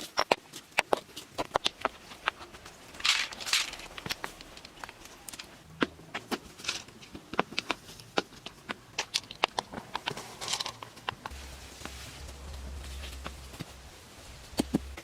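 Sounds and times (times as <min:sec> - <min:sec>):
low hum: 0:11.2 - 0:15.0.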